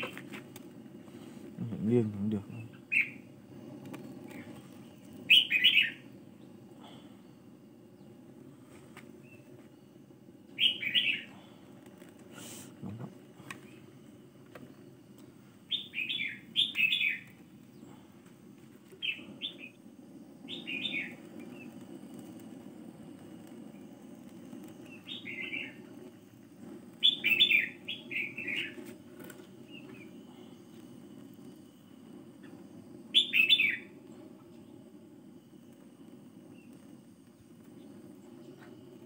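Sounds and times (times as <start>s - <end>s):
butane torch rushing: 0.0s - 39.0s
small birds chirping: 1.6s - 14.0s, 14.6s - 18.3s, 18.9s - 22.4s, 23.1s - 31.0s, 32.4s - 35.0s.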